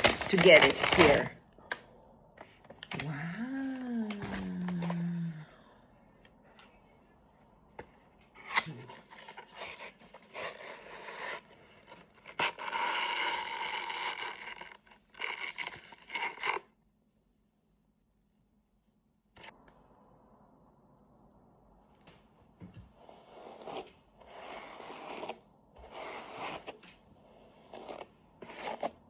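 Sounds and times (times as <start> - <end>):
packaging scraping and tearing: 0.0 - 1.3, 8.4 - 16.6, 23.3 - 29.0.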